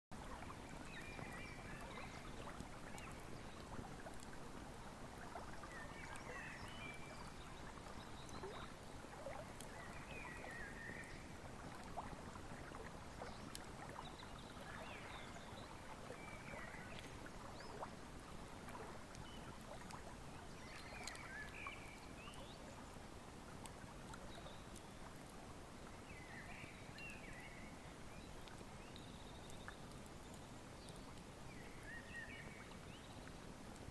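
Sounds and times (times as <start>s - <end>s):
river flowing: 0.2s - 33.9s
wood fire crackling: 0.9s - 5.4s.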